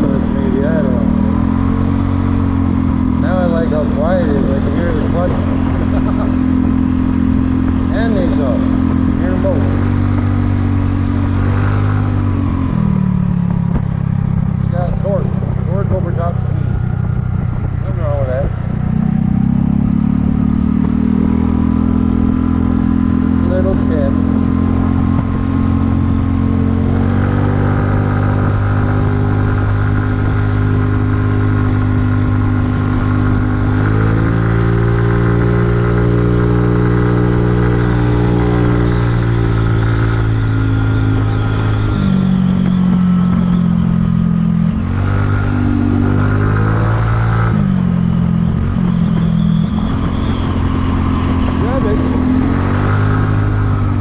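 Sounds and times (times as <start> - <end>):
scooter engine running: 0.0 - 54.0.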